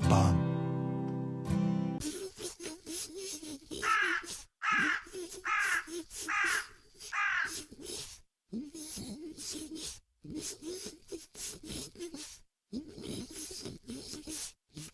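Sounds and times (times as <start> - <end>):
bird cawing: 3.8 - 7.7.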